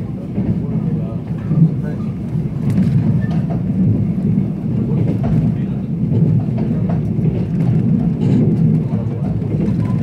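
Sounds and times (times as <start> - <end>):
train rumbling from inside carriage: 0.0 - 10.0.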